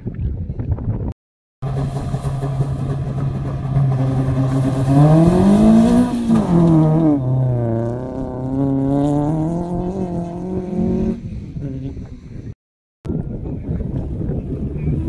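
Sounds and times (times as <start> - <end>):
car engine revving: 1.6 - 12.0.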